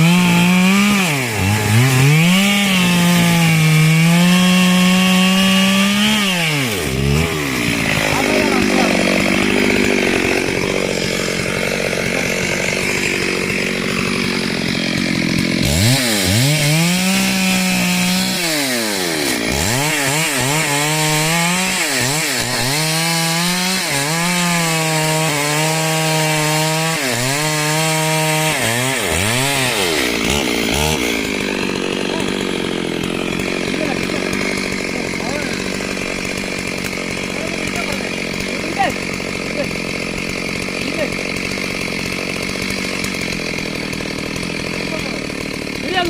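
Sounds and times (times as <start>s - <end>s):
chainsaw engine revving: 0.0s - 46.0s.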